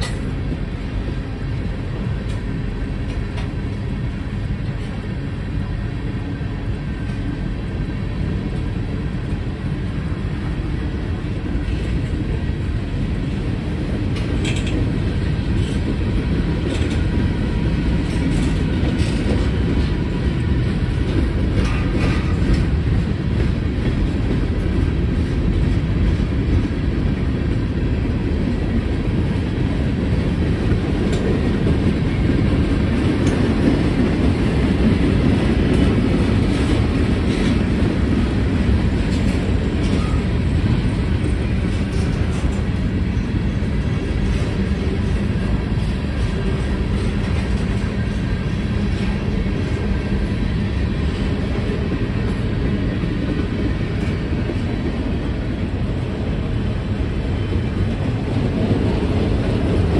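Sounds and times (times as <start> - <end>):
train wheels rumbling on rails: 0.0 - 59.9
wheels clicking over rail joints: 14.0 - 17.2, 17.9 - 20.0, 20.9 - 26.7.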